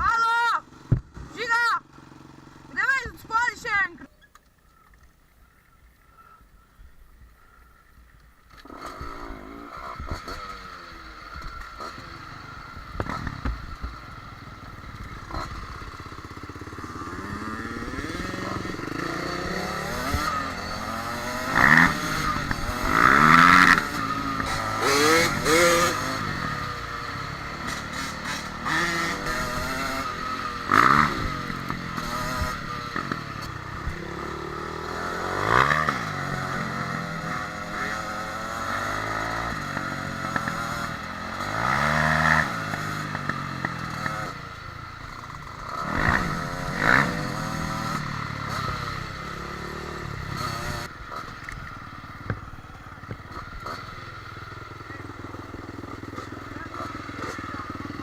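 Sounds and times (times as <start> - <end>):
dirt bike engine revving: 8.5 - 58.0.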